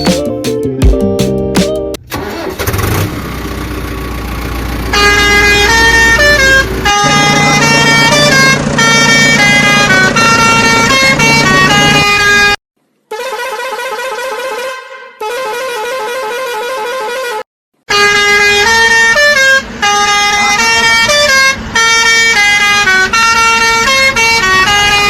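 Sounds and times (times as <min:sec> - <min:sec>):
short horn blare: 0:04.9 - 0:21.5
musical vehicle horn playing a tune: 0:04.9 - 0:25.0.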